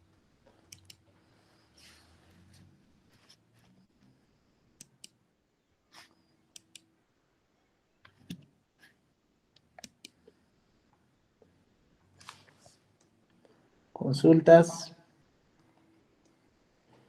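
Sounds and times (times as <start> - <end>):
faint sharp clicks: 0.7 - 1.0.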